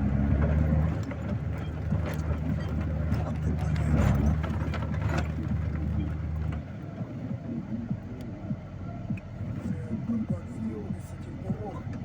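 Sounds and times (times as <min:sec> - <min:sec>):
vehicle engine humming: 0:00.0 - 0:12.0
short squeaks and knocks: 0:00.4 - 0:06.6.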